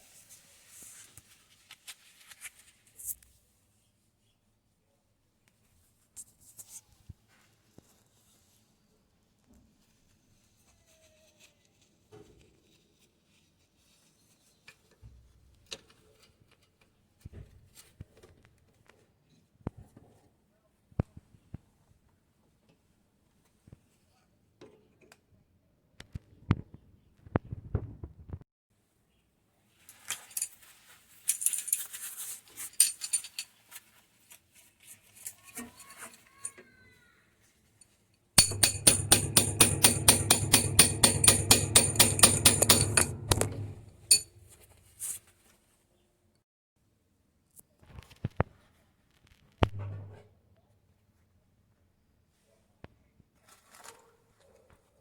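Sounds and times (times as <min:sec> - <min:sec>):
fast rhythmic rattle: 0:38.4 - 0:44.4
washing machine humming: 0:38.4 - 0:44.4
metallic clicks and rattles: 0:38.4 - 0:44.6.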